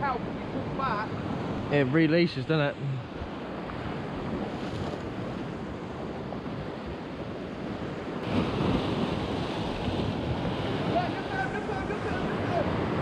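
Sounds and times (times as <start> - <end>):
wind buffeting microphone: 2.9 - 13.0
sea swell washing against rocks: 7.4 - 13.0.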